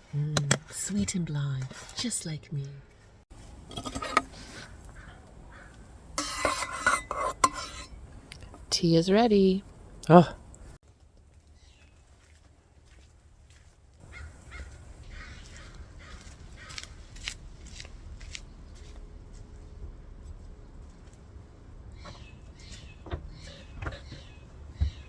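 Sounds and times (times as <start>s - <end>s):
birds calling: 4.3s - 6.0s, 14.0s - 16.9s, 21.9s - 25.0s
low outdoor rumble: 14.0s - 25.0s.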